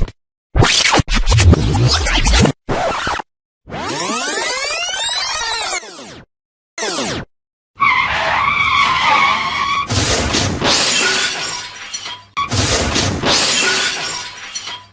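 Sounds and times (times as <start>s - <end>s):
tyre screech: 7.8s - 12.5s
glass shattering: 8.8s - 14.9s.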